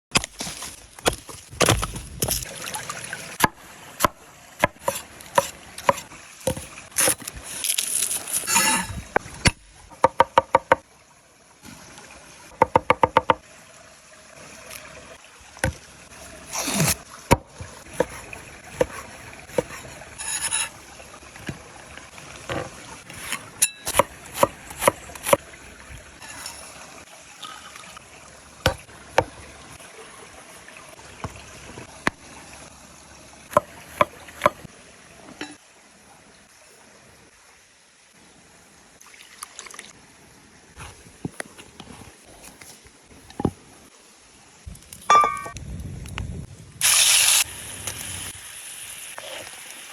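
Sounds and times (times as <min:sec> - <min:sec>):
knife chopping on wooden board: 0:04.6 - 0:07.2, 0:16.8 - 0:20.7
knife knocking and scraping board: 0:04.6 - 0:07.3, 0:17.9 - 0:20.8.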